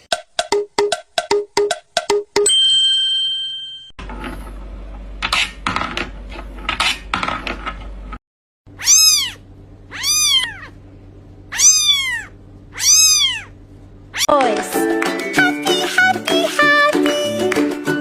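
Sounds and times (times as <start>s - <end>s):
cat meowing: 8.8s - 10.8s, 11.5s - 13.6s.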